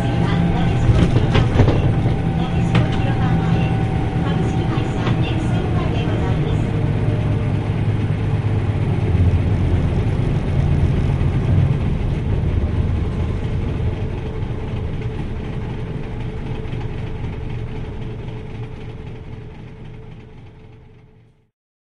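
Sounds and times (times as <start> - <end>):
road noise: 0.0 - 16.5
diesel bus engine drone: 0.0 - 21.4.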